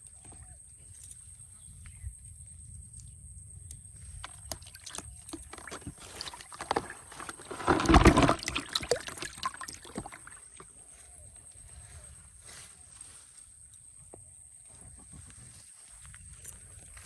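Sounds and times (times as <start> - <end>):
water splashing and sloshing: 4.2 - 10.9.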